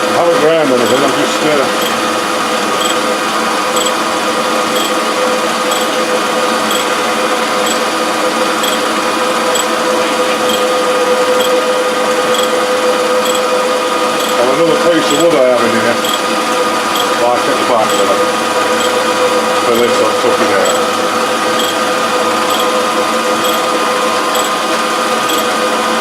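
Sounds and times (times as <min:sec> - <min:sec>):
faint ticking: 0:12.3 - 0:12.5, 0:14.2 - 0:14.4, 0:22.5 - 0:22.7, 0:23.4 - 0:23.6.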